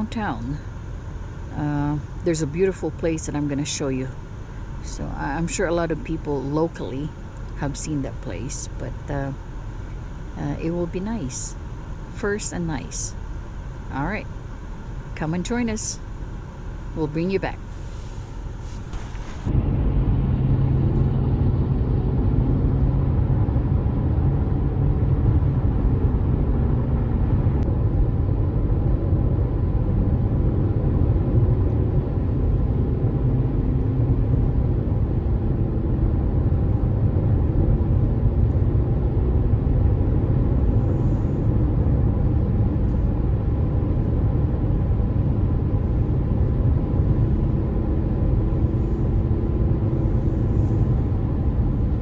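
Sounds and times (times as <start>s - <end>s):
car road rumble: 17.0s - 52.0s.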